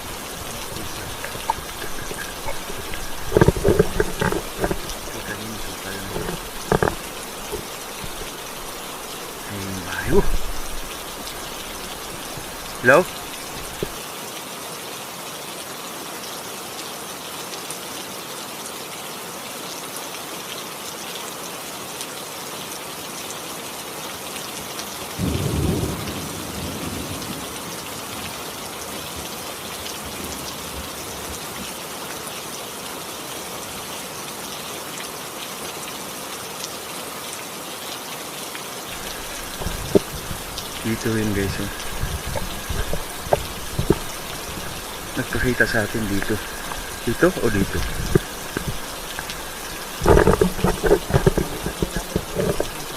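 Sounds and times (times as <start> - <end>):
steady rain: 0.0 - 52.9.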